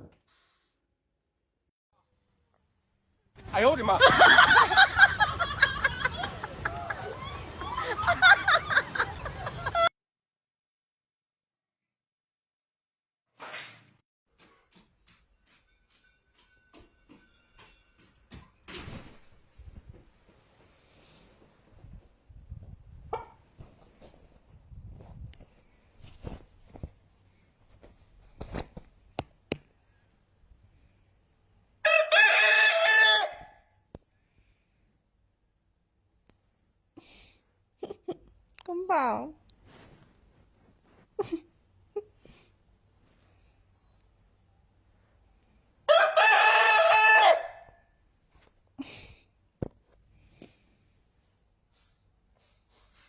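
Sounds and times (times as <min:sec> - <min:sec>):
rooster crowing: 0:31.8 - 0:33.6, 0:45.9 - 0:47.8.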